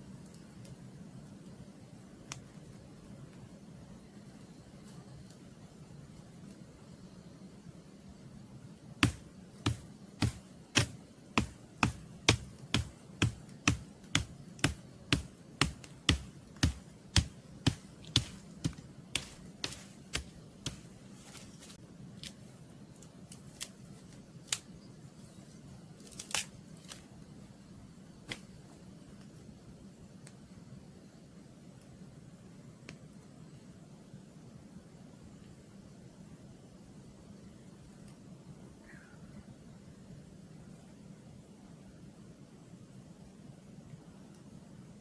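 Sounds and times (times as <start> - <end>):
sharp knocks: 9.0 - 21.4.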